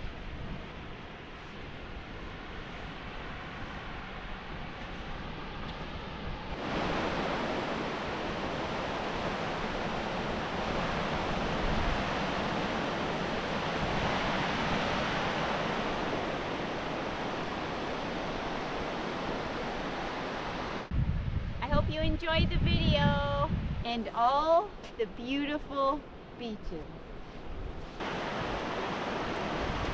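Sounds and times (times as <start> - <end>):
ocean surf breaking on beach: 0.0 - 20.9, 27.8 - 29.9.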